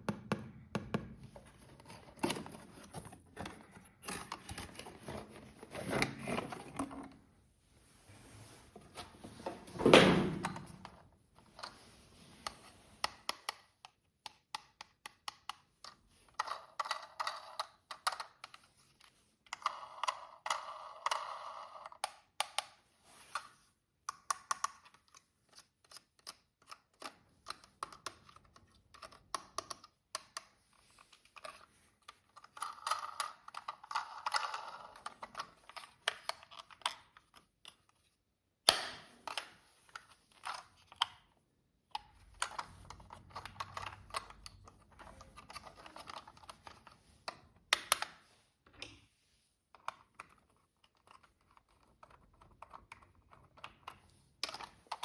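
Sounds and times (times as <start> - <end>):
plastic toy parts clicking: 13.0 - 22.8, 24.1 - 37.9, 41.9 - 48.2, 49.8 - 55.0.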